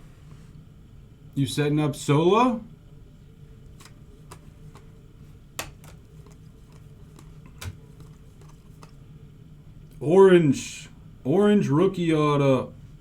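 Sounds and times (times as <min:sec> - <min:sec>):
low steady hum: 0:00.0 - 0:13.0
faint clicks and taps: 0:03.6 - 0:04.9, 0:05.6 - 0:09.0.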